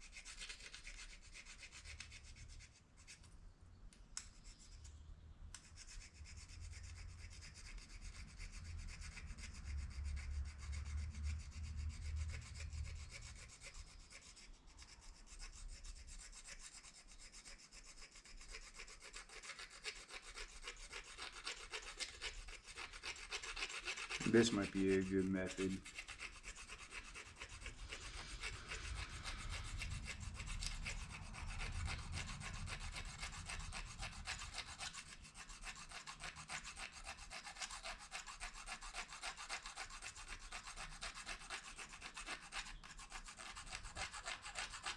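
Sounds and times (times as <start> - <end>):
plastic fork scraping plastic spoon: 0.0 - 3.3, 16.7 - 44.9.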